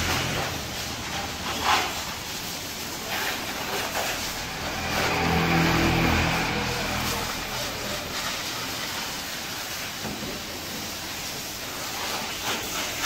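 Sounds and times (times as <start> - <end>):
vehicle engine running: 3.5 - 9.3.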